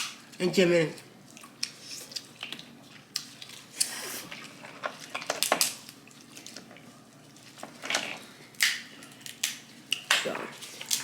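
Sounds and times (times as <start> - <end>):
wet eating sounds: 1.0 - 11.0
crab shells cracking: 4.9 - 6.0, 8.6 - 11.0.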